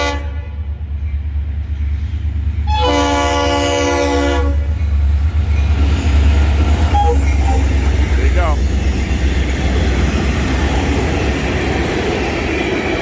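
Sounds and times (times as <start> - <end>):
train horn blasts: 0.0 - 0.7, 2.6 - 4.7, 6.9 - 7.8
low train rumble: 0.0 - 13.0.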